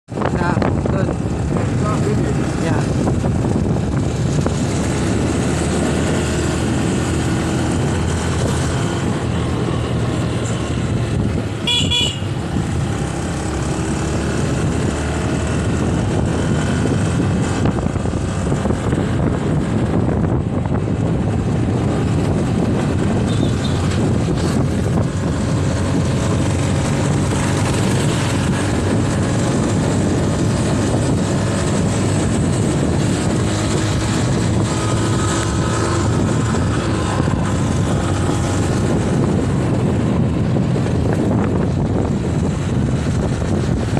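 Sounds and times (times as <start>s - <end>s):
road and wind noise: 0.0s - 43.9s
motorcycle engine running: 0.2s - 43.9s
horn tooting: 11.6s - 12.4s, 23.2s - 23.9s.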